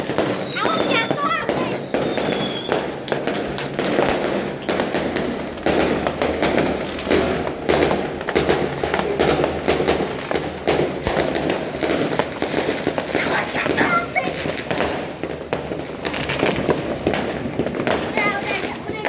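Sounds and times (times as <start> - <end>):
fireworks and firecrackers banging: 0.0 - 19.0
rumble of distant explosions: 0.0 - 19.0.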